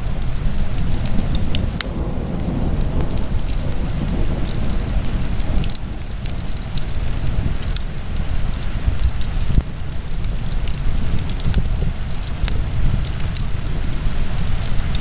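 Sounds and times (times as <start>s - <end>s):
fire crackles and pops: 0.0s - 15.0s
wood fire burning: 0.0s - 15.0s.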